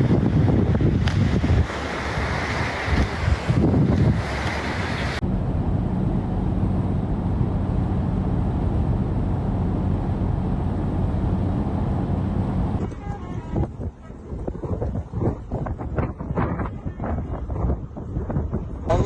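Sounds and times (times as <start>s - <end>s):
wind on microphone: 0.0s - 19.0s
vehicle engine droning: 5.0s - 15.0s.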